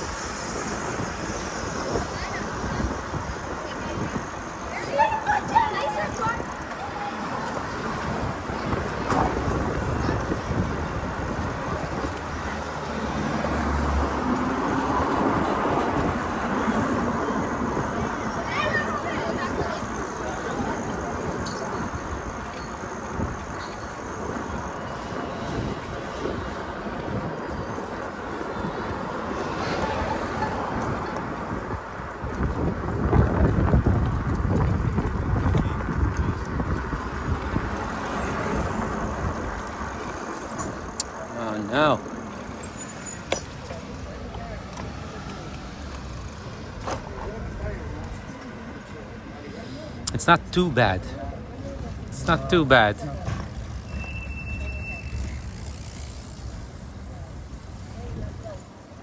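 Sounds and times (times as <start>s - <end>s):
wind buffeting microphone: 0.0s - 41.2s
street traffic rumble: 0.0s - 59.0s
passing vehicle engine hum: 6.9s - 50.0s.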